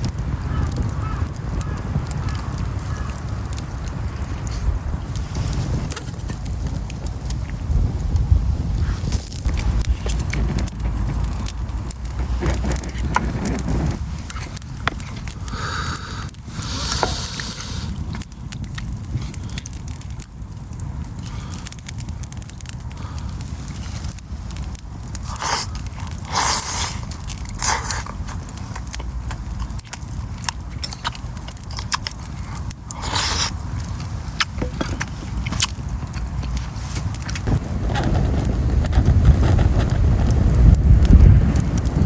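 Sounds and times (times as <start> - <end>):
campfire crackling and popping: 0.0 - 42.0
scraping or chewing noises: 8.7 - 20.1, 23.5 - 38.1.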